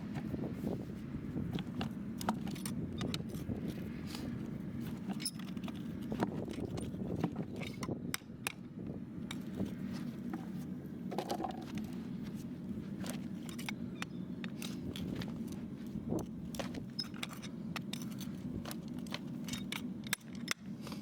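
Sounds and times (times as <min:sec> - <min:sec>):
metal tools scraping hoof: 0:01.8 - 0:07.8.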